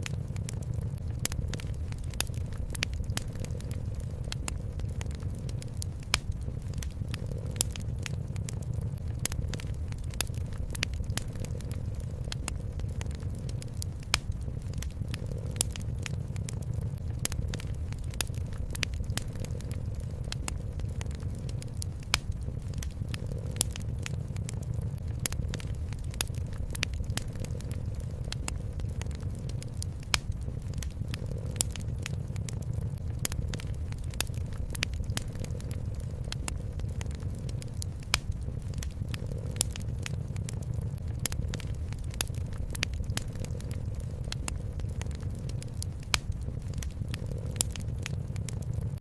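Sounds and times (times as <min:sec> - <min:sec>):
wood fire crackling: 0:00.0 - 0:49.0.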